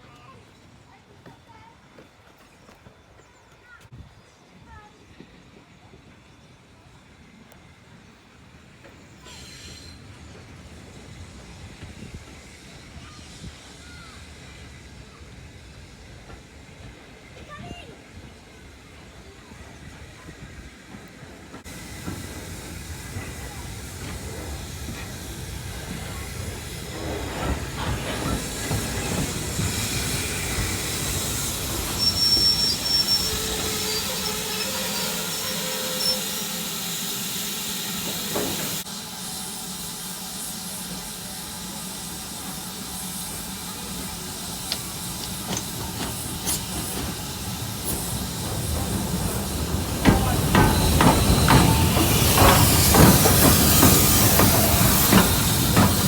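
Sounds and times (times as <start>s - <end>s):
rail noise: 0.1s - 56.0s
steam hissing: 9.0s - 56.0s
high squeal: 26.9s - 38.8s.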